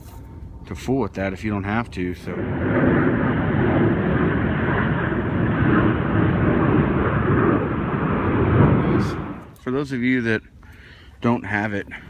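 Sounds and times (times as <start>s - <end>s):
airplane rumbling overhead: 0.0s - 9.6s.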